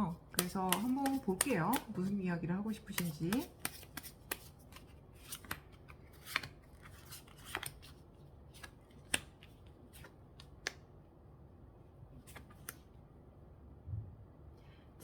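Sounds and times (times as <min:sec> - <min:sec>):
cards being shuffled: 0:00.3 - 0:10.8, 0:12.2 - 0:12.9.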